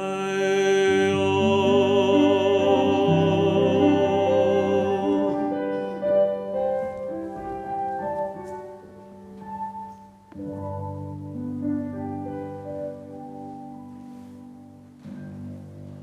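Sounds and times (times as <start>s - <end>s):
person singing a hymn: 0.0s - 9.2s
keyboard playing: 0.9s - 16.0s.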